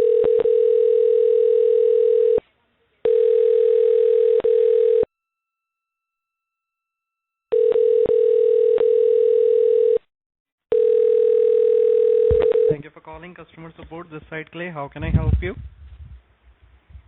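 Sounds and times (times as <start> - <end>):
telephone line tone: 0.0 - 2.4, 3.0 - 5.1, 7.5 - 10.1, 10.7 - 12.8.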